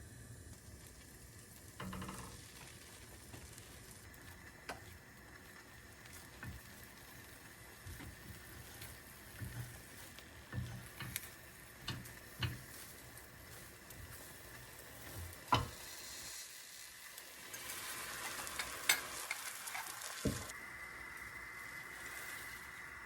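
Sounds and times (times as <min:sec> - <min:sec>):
food sizzling in a frying pan: 0:00.0 - 0:23.0
utensil tapping a pan: 0:07.8 - 0:13.2, 0:15.0 - 0:15.8.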